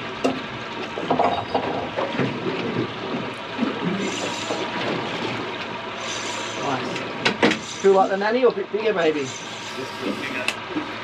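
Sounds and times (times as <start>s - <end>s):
water sloshing and splashing: 0.0s - 11.0s
knocks and clatter: 0.2s - 5.4s.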